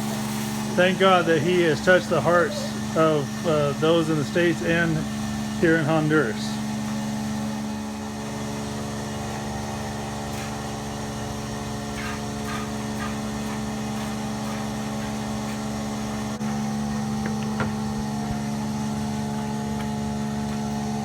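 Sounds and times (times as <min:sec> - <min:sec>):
motor humming: 0:00.0 - 0:21.0.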